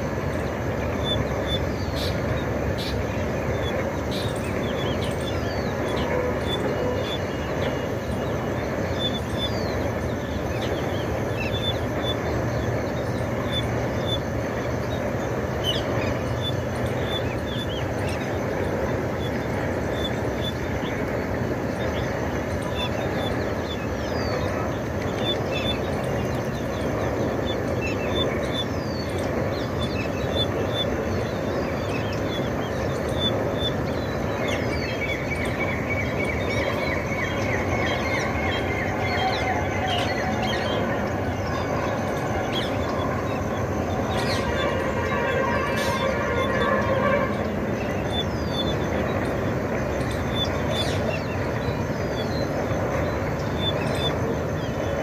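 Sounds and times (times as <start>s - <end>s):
birds chirping: 0.0s - 55.0s
steady rushing noise: 0.0s - 55.0s.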